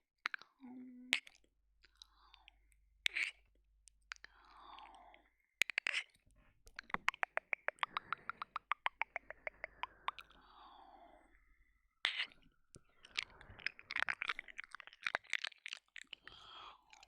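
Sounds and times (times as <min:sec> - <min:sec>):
wet mouth sounds: 0:01.1 - 0:02.0, 0:05.6 - 0:11.2, 0:12.0 - 0:17.0
wet clicks: 0:05.6 - 0:10.4, 0:12.1 - 0:17.0.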